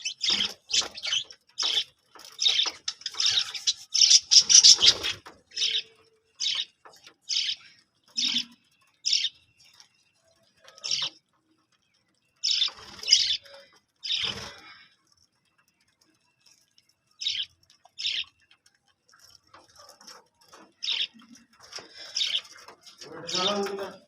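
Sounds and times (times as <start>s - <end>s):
budgerigars chirping: 0.0s - 6.7s, 7.3s - 9.4s, 12.4s - 14.6s, 17.2s - 18.3s, 20.8s - 22.6s.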